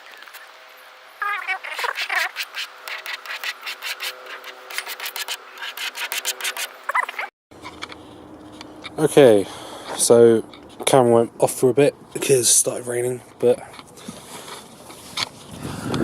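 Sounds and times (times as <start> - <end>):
rubbing or scraping strokes: 1.2 - 8.8, 13.8 - 15.6.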